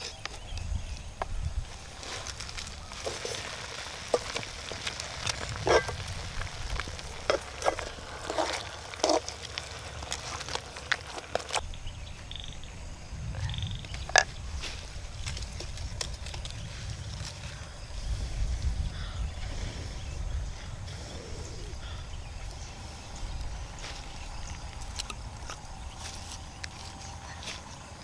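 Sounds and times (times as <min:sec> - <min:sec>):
food sizzling in a wok: 0:02.0 - 0:09.8
stirring scraping against pan: 0:02.0 - 0:11.6.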